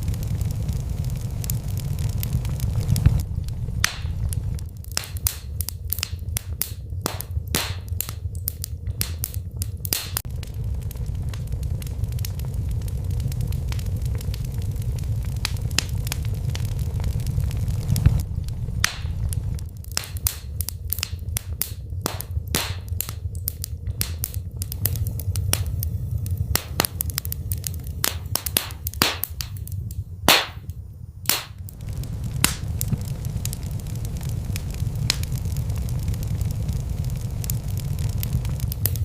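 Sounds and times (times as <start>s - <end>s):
fire crackling and popping: 0.0s - 39.0s
fire flames rumbling: 0.0s - 39.0s.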